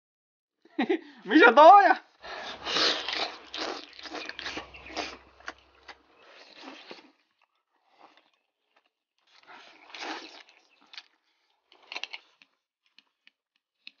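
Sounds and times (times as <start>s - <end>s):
wet smacking chewing: 2.2s - 11.2s.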